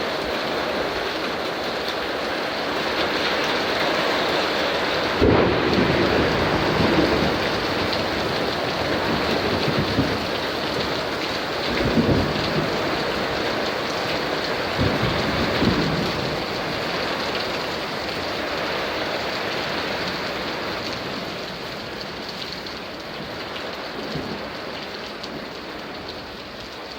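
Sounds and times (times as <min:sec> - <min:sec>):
heavy rain pouring: 0:00.0 - 0:26.9
thunder rumbling: 0:04.8 - 0:24.6.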